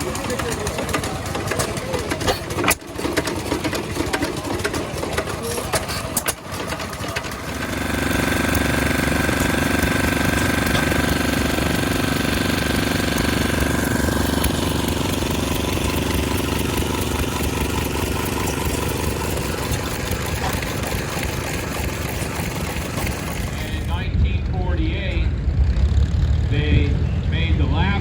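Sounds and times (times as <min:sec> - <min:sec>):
engine running: 0:00.0 - 0:28.0
high steady whine: 0:23.2 - 0:28.0.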